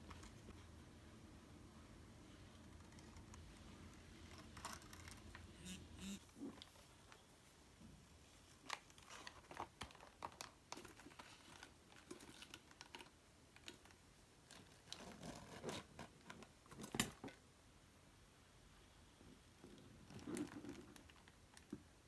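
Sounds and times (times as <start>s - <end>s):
paper crinkling and clicking: 8.6s - 15.6s.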